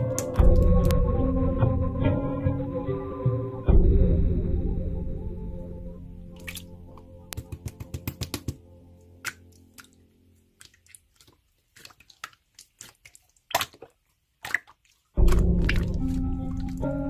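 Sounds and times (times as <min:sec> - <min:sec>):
background music: 0:00.0 - 0:10.6, 0:15.2 - 0:17.0
slime clicking and squishing: 0:09.2 - 0:17.0.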